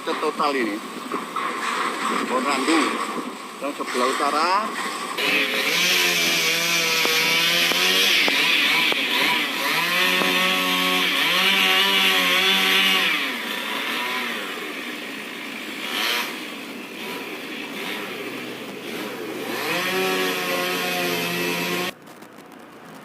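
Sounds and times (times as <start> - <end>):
chainsaw engine revving: 5.2 - 22.0.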